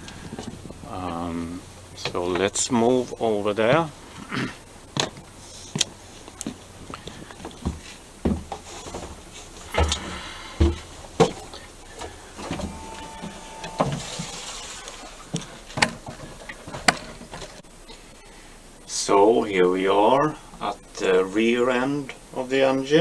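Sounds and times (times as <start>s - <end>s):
footsteps: 0.0s - 3.1s, 4.9s - 17.7s
handling knocks and clicks: 5.0s - 12.8s, 15.4s - 17.6s.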